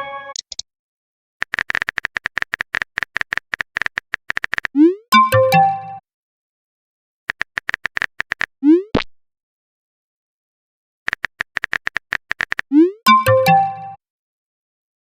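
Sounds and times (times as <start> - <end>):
message chime: 0.0 - 0.4, 4.9 - 6.0, 12.8 - 14.0
quick typing taps: 1.4 - 4.8, 7.3 - 8.5, 11.1 - 12.7.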